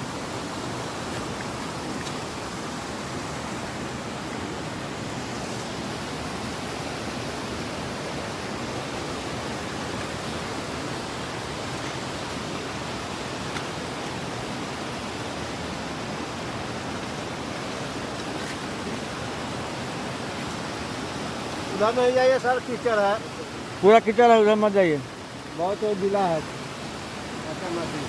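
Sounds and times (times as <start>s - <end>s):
heavy rain rushing: 21.5s - 25.0s.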